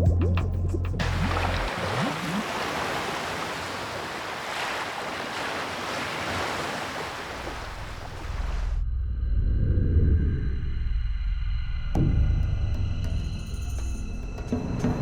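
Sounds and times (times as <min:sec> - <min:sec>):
water bubbling gurgles: 0:01.0 - 0:08.7
sea surf rushing: 0:01.0 - 0:08.8.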